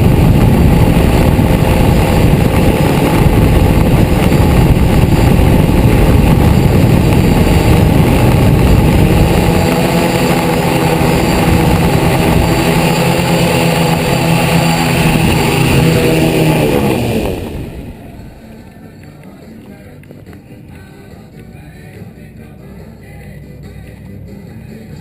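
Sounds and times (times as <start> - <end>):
drone propellers buzzing: 0.0 - 19.0.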